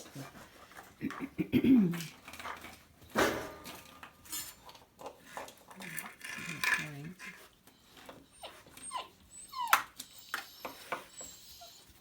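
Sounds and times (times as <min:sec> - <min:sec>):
puppy whimpering and yipping: 0:08.2 - 0:12.0.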